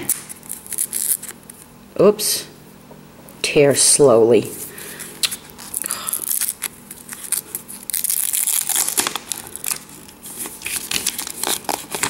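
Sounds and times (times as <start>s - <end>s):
food package tearing: 0.0s - 1.6s, 5.3s - 12.0s
wrapping crinkling: 0.0s - 1.7s, 5.2s - 12.0s.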